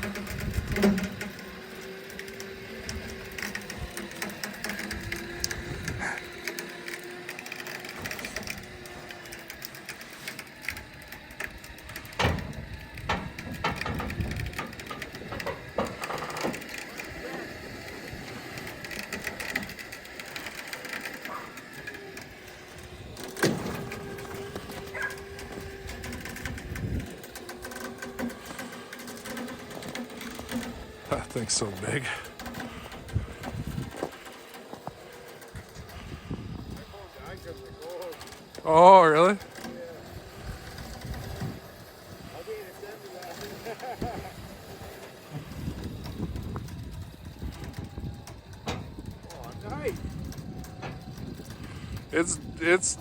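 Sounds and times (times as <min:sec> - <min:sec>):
winch whining under load: 0:00.0 - 0:53.0.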